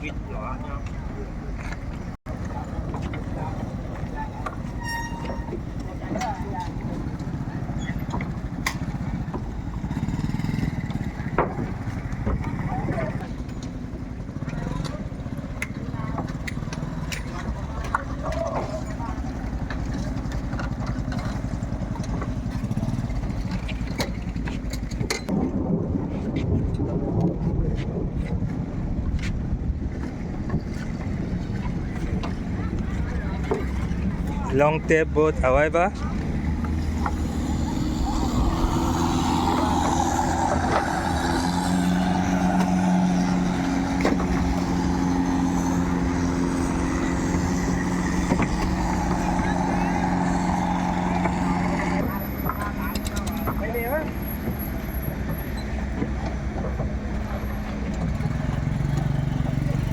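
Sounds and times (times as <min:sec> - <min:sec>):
boat engine pulsing: 0:00.0 - 0:25.3, 0:28.1 - 0:59.9.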